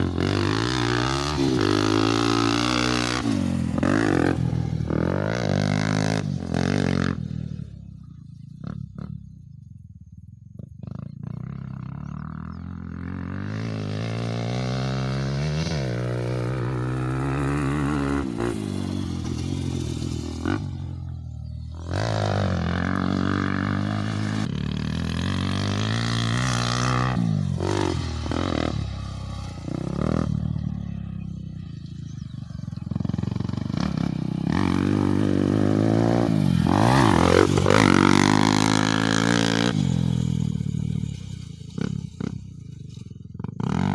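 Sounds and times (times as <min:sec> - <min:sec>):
motocross bike engine revving: 0:00.0 - 0:07.7, 0:10.8 - 0:43.9.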